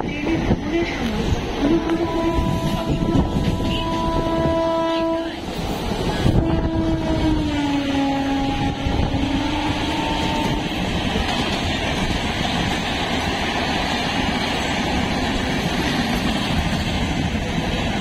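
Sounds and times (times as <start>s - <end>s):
train wheels rumbling on rail: 0.0s - 18.0s
train horn: 1.6s - 5.5s, 6.2s - 10.8s.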